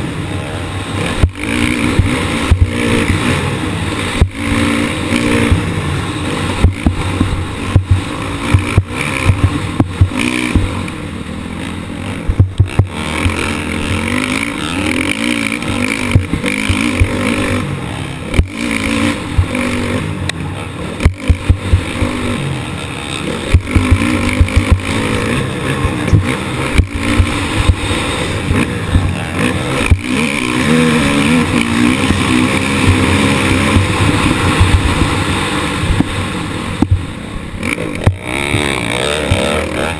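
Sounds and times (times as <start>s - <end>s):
motocross motorcycle engine racing: 0.0s - 39.9s
rush of noise: 0.0s - 39.9s
sharp knocks: 6.6s - 10.8s, 12.3s - 13.4s, 32.8s - 35.2s, 36.8s - 37.1s.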